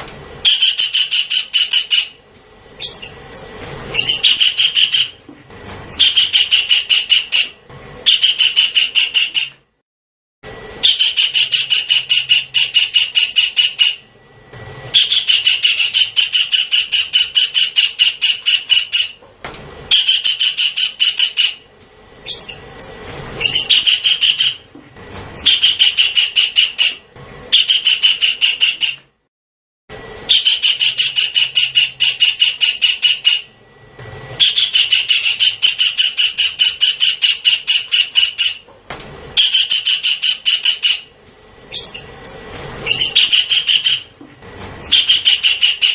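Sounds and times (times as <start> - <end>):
kingfisher rattling calls: 0.4 - 2.2, 2.8 - 5.2, 5.9 - 9.5, 10.8 - 14.0, 14.9 - 19.2, 19.9 - 21.6, 22.2 - 24.7, 25.4 - 29.0, 30.3 - 33.5, 34.4 - 38.6, 39.4 - 41.1, 41.7 - 44.1, 44.8 - 45.9.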